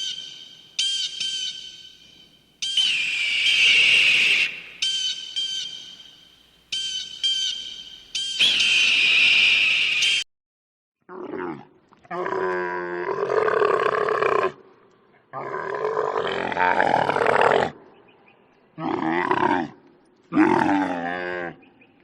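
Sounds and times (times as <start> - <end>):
camel groaning and bellowing: 11.1 - 14.6, 18.8 - 21.6.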